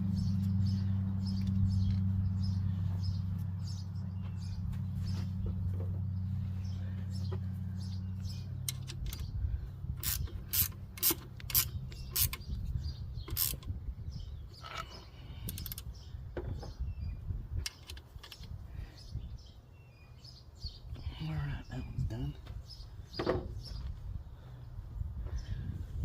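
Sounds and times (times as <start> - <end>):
low hum: 0.0 - 16.2
ratchet wrench clicking on bolts: 10.0 - 12.4, 13.3 - 13.7, 15.4 - 15.9.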